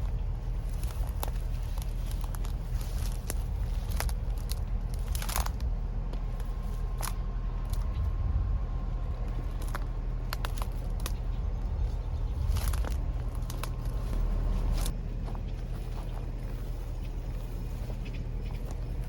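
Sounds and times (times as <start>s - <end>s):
footsteps crunching on gravel: 0.0s - 8.3s, 9.0s - 19.0s
steady low rumble: 0.0s - 19.0s.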